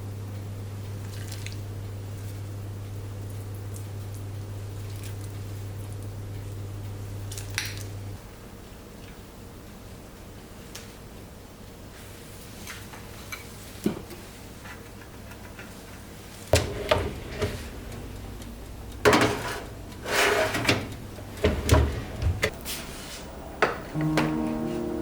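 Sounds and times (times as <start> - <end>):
knocks and clunks of dishes: 19.0 - 19.7.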